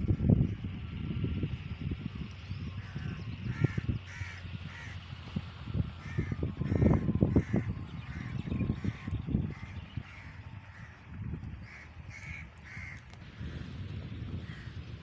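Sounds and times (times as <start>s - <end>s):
wind rumble on microphone: 0.0s - 15.0s
bird calling: 2.5s - 5.0s, 6.0s - 13.2s.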